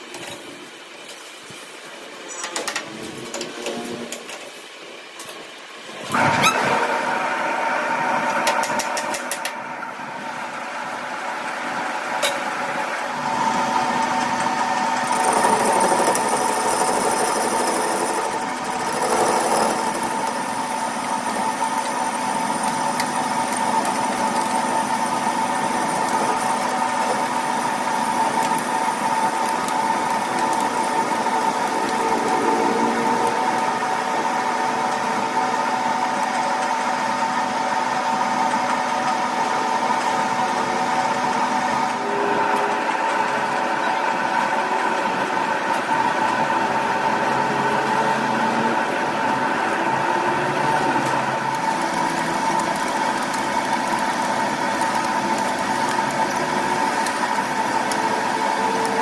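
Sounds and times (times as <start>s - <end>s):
machine motor humming and whining: 6.0s - 59.0s.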